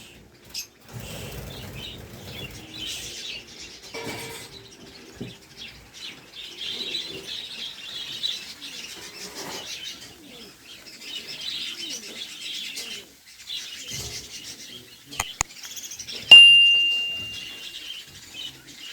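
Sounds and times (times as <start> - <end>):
cage birds chirping: 0.0 - 18.9
sharp clicks: 15.2 - 15.8
ringing tone: 16.3 - 17.7.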